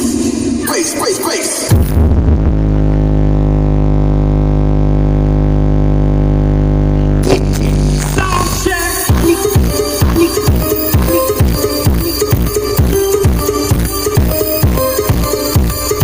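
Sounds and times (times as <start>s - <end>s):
loud buzzy bass tone: 1.7s - 16.0s
music with a beat: 7.2s - 16.0s.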